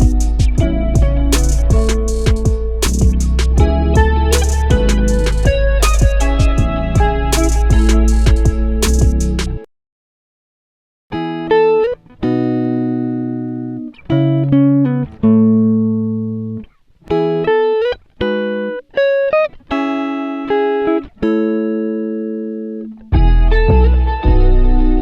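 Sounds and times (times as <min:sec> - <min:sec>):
plucked guitar-like melody: 0:00.0 - 0:09.6, 0:11.1 - 0:25.0
bass: 0:00.0 - 0:09.7, 0:23.1 - 0:25.0.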